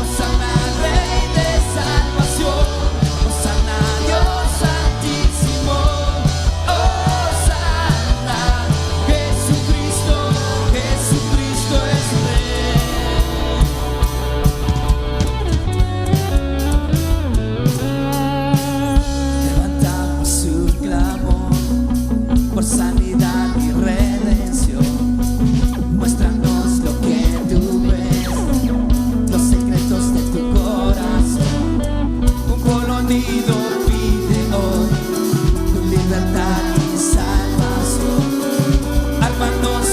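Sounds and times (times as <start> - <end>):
drum beat: 0.0 - 18.0
bass guitar: 0.0 - 39.9
drum kit beat: 0.0 - 39.9
electric guitar: 0.0 - 39.9.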